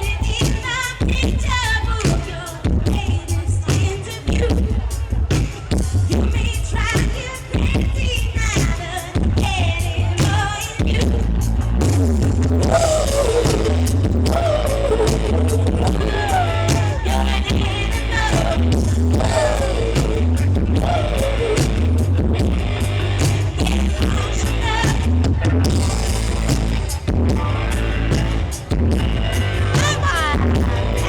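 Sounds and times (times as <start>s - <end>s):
woman singing: 0.0s - 11.3s, 12.6s - 25.4s, 29.8s - 31.0s
live rock band playing: 0.0s - 31.0s
booming bass: 10.8s - 31.0s.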